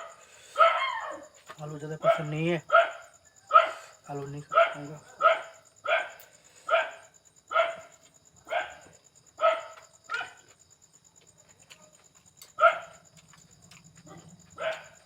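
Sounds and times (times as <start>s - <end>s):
dog barking: 0.0s - 1.2s, 2.0s - 10.4s, 12.6s - 13.0s, 14.1s - 15.0s.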